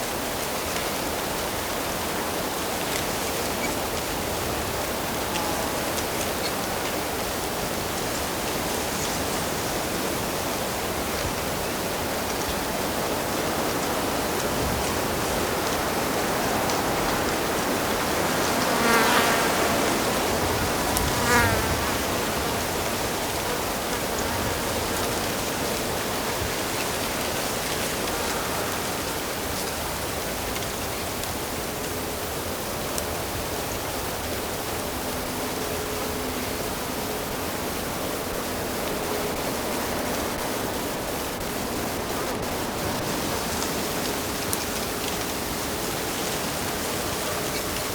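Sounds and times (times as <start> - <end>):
buzzing insect passing: 18.5 - 22.6.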